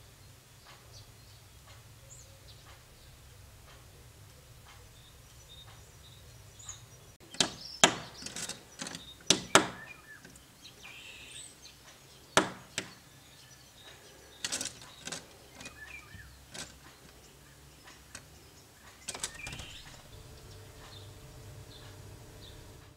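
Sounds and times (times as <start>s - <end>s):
woodpecker knocking on glass: 7.2s - 10.4s, 12.4s - 13.1s, 14.4s - 17.2s, 18.9s - 20.1s
light taps and scrabbling: 7.3s - 10.4s, 13.8s - 20.1s.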